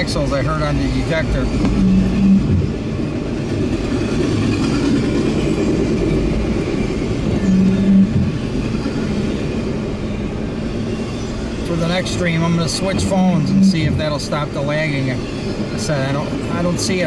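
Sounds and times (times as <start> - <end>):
train wheels rumbling on rails: 0.0 - 17.0
windshield wiper sweeping: 1.5 - 2.8, 7.3 - 8.4.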